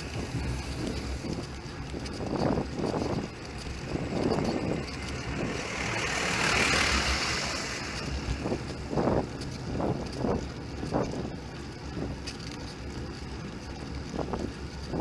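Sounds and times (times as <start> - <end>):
passing car tyre hiss: 0.0 - 9.8
wind buffeting microphone: 0.0 - 15.0.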